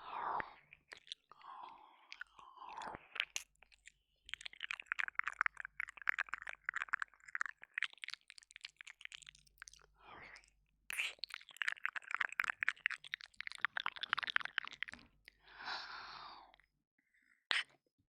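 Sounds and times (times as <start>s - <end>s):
wet mouth clicks and smacks: 0.7s - 1.4s, 2.1s - 15.4s, 17.5s - 17.8s
breathy sound: 15.4s - 16.6s.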